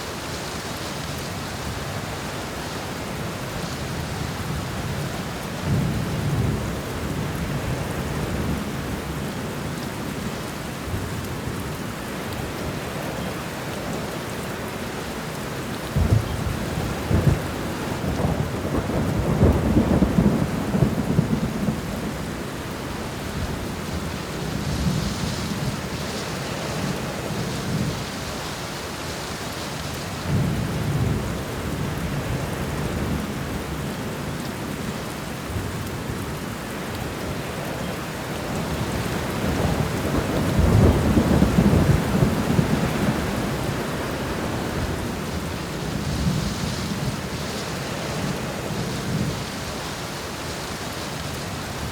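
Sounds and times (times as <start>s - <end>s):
heavy rain: 0.0s - 51.9s
thunder rumbling: 15.9s - 22.3s, 38.5s - 49.6s.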